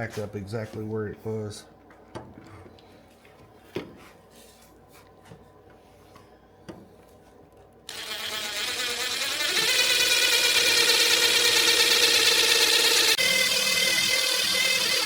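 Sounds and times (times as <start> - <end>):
power drill drilling steel: 7.9 - 15.0.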